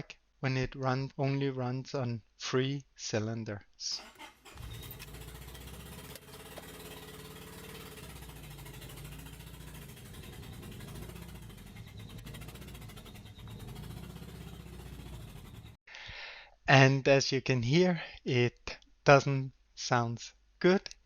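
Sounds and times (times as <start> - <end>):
car engine idling roughly: 4.0 - 15.8.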